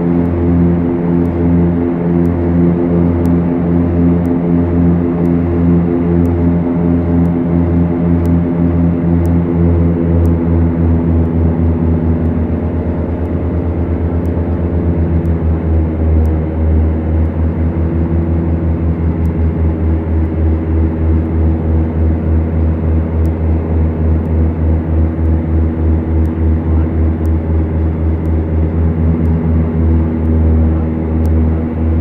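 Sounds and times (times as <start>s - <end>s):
propeller aircraft engines throbbing: 0.0s - 32.0s.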